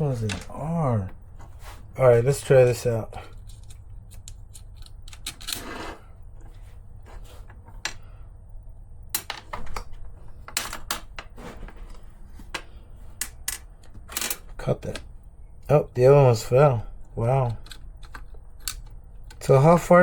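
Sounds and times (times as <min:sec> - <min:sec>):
faint low hum: 0:00.0 - 0:20.0
small parts clicking and tapping: 0:03.3 - 0:05.6, 0:12.5 - 0:15.1, 0:17.3 - 0:19.5.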